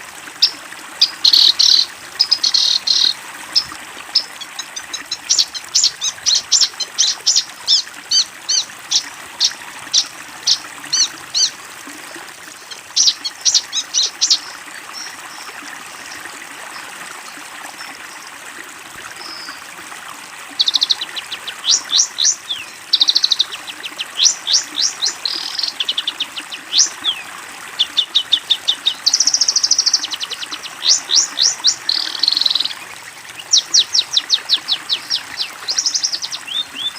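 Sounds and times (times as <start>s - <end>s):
bird chirping rapidly: 1.0s - 11.6s, 12.6s - 15.1s, 20.6s - 27.2s, 27.8s - 32.7s, 33.4s - 36.9s.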